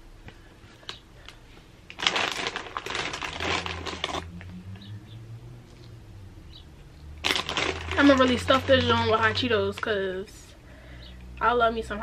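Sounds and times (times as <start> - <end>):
snack bag crackling: 1.3 - 4.5, 7.2 - 9.9.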